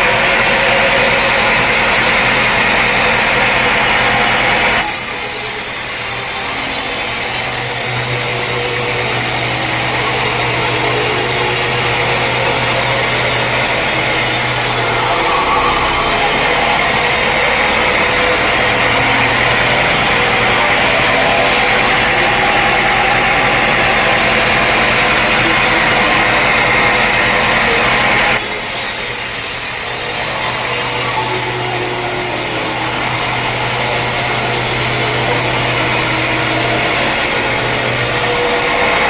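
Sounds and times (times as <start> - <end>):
engine running: 0.0 - 39.0
saw cutting through log: 0.0 - 39.0
steady low hum: 5.4 - 19.3.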